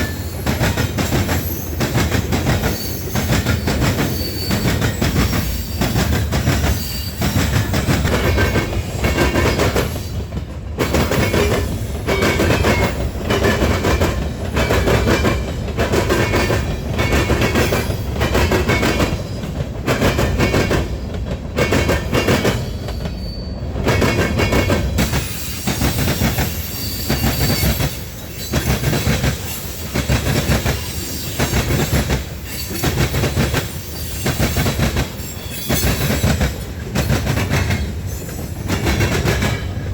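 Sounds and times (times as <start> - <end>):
wheel squeals: 0.0 - 10.2, 22.5 - 23.7, 25.0 - 36.6
train rumble: 0.0 - 39.9
train wheels clacking: 0.0 - 39.9.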